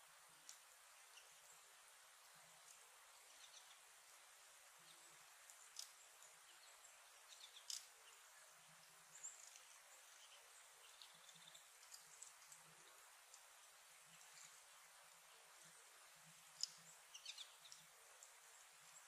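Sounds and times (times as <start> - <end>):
faint steady hiss: 0.0 - 19.0
small birds chirping: 0.0 - 19.0.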